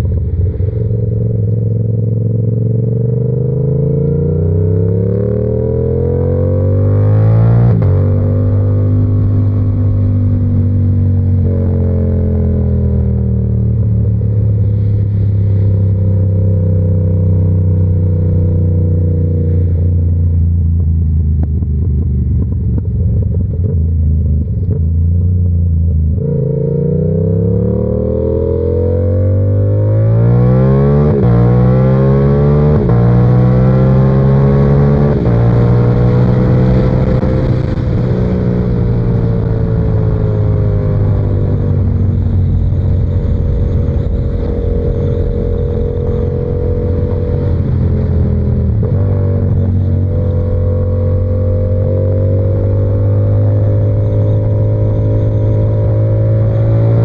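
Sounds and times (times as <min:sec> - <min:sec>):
motorcycle engine cruising and upshifting: 0:00.0 - 0:57.0.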